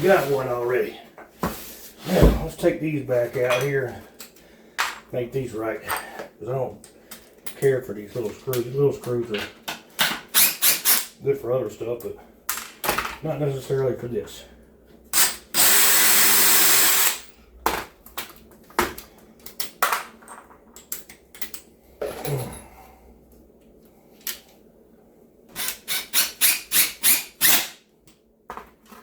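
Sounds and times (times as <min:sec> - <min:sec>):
sharp clicks of tool handling: 0:09.3 - 0:11.1
cordless drill running: 0:15.2 - 0:17.2.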